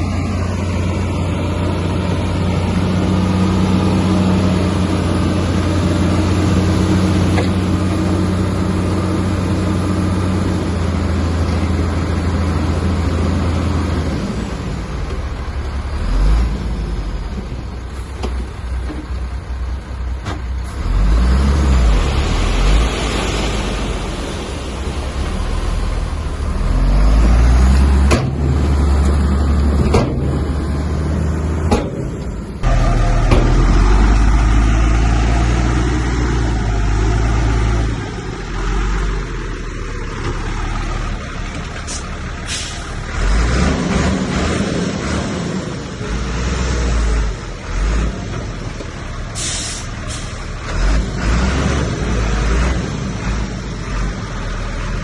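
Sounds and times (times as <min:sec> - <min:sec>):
diesel machinery engines running: 0:00.0 - 0:55.0
brief hisses: 0:49.4 - 0:50.4.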